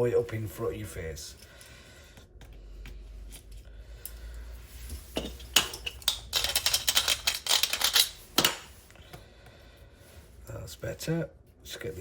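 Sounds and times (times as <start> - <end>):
metal tools clicking and scraping: 5.2 - 8.7.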